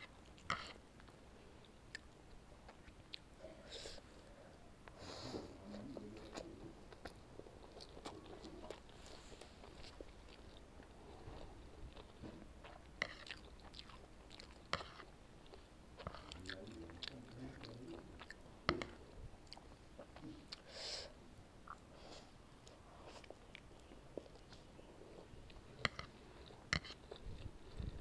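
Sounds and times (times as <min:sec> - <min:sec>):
chewing noodles: 0:05.6 - 0:20.6, 0:22.6 - 0:28.0.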